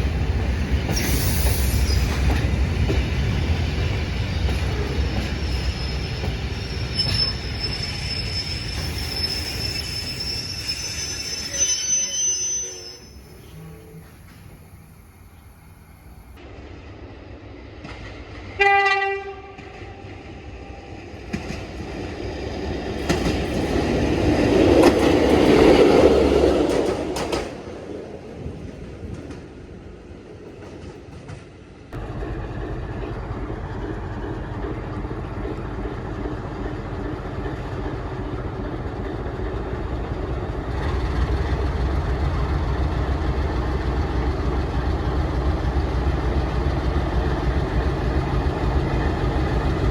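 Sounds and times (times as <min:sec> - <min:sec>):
train engine drone: 0:00.0 - 0:49.9
train passing: 0:00.0 - 0:49.9
train horn blast: 0:18.6 - 0:20.1.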